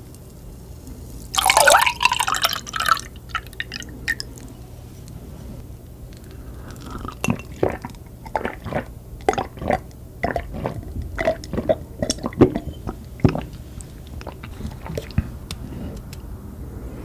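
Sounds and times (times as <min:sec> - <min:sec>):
wet eating smacks: 0:06.8 - 0:15.3.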